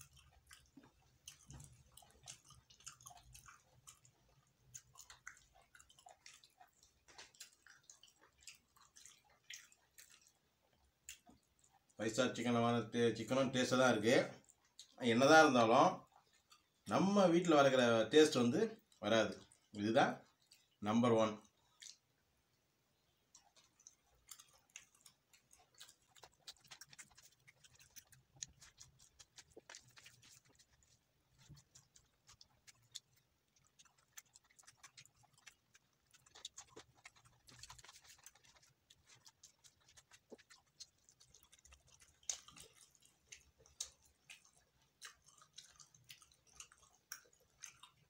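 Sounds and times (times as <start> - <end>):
man chewing: 0.0 - 12.0, 14.4 - 15.0, 16.0 - 16.9, 18.8 - 20.8, 21.4 - 22.3, 23.0 - 48.0
wet mouth clicks: 0.0 - 12.0, 21.4 - 22.1, 23.3 - 48.0.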